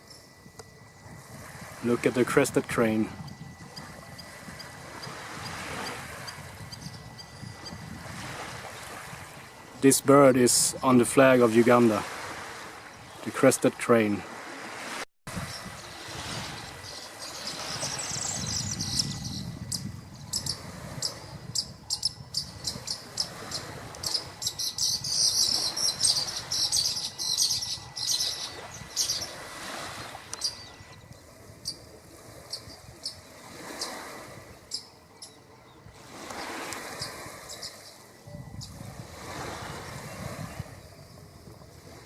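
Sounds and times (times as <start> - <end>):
small birds chirping: 15.4 - 34.0, 34.7 - 38.8.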